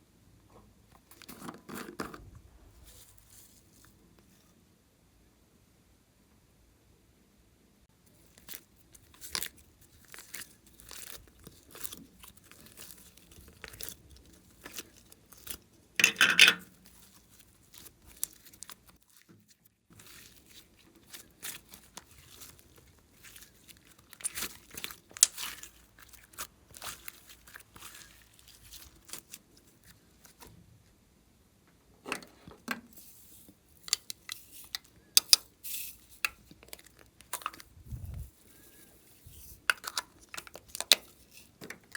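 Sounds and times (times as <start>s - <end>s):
slime clicking and crackling: 8.1s - 15.9s, 16.6s - 30.4s, 33.8s - 37.7s, 39.6s - 41.9s.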